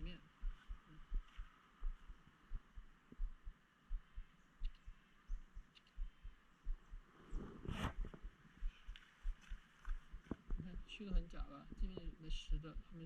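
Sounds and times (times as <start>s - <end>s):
footstep thuds: 5.3s - 12.1s
brief rustle: 7.3s - 8.2s.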